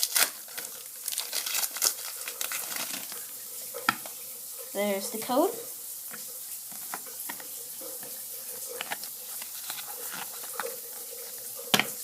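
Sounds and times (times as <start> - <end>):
foil wrapper crinkling: 0.0 - 3.4, 6.7 - 11.7
cards being handled: 8.7 - 11.9.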